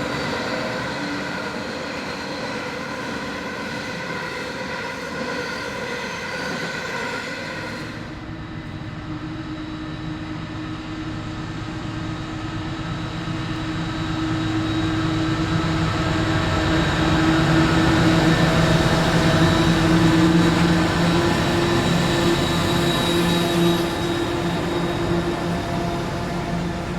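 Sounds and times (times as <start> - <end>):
locomotive engine drone: 7.9 - 26.9.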